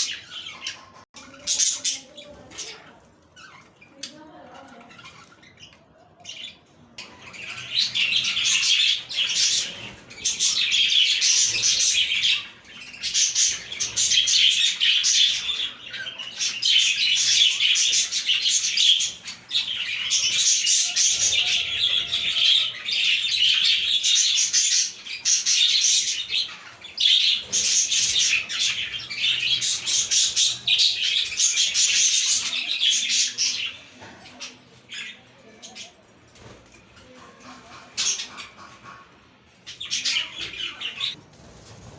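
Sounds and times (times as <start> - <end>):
budgerigars chirping: 7.0 - 33.8.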